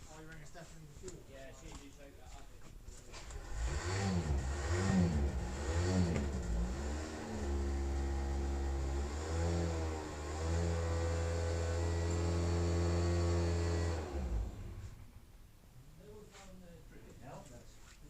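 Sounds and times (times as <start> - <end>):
motorcycle engine revving: 3.3 - 15.0.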